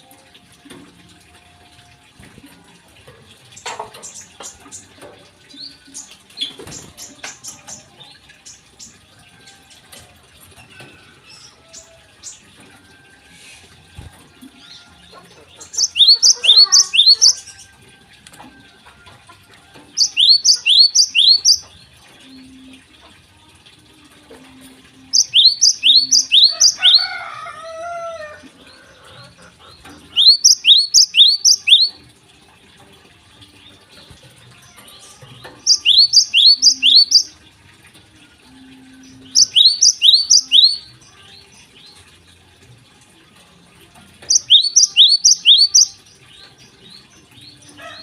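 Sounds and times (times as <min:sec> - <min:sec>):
lower warbling bird call: 0:15.8 - 0:17.4, 0:20.0 - 0:21.7, 0:25.1 - 0:27.0, 0:30.1 - 0:32.0, 0:35.7 - 0:37.3, 0:39.3 - 0:40.9, 0:44.3 - 0:46.0
songbird singing sharp high notes: 0:15.8 - 0:17.4, 0:20.0 - 0:21.6, 0:25.2 - 0:27.0, 0:30.2 - 0:31.9, 0:35.7 - 0:37.3, 0:39.3 - 0:40.9, 0:44.3 - 0:46.0.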